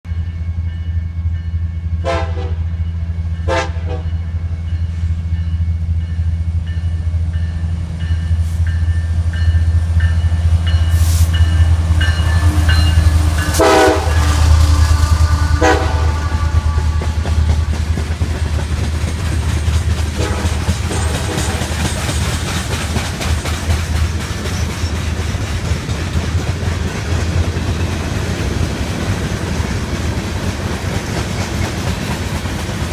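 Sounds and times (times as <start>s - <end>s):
diesel locomotive rumbling: 0.1s - 32.9s
train horn blasts: 1.9s - 4.4s, 12.1s - 18.3s, 20.1s - 21.9s.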